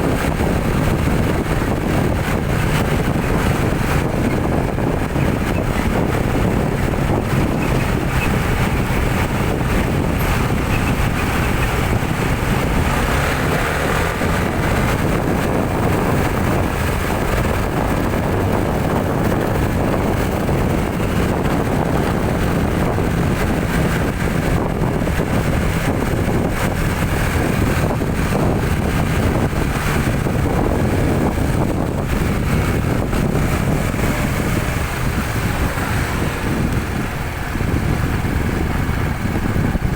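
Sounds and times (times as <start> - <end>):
vehicle engine driving: 0.0 - 39.9
wind: 0.0 - 39.9.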